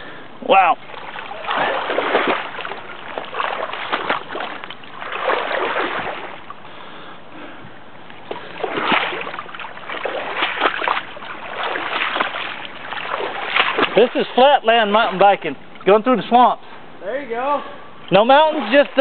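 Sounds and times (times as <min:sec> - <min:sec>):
bicycle wheels splashing through water: 0:00.8 - 0:07.1, 0:08.2 - 0:16.0.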